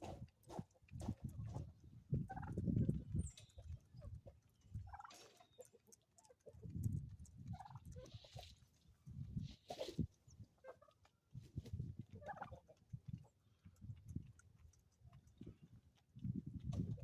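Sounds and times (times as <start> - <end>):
farmyard fowl: 0.0 - 6.8, 7.5 - 8.8, 9.4 - 13.4
turkey gobbling: 4.9 - 6.6, 9.7 - 11.0, 12.2 - 12.8.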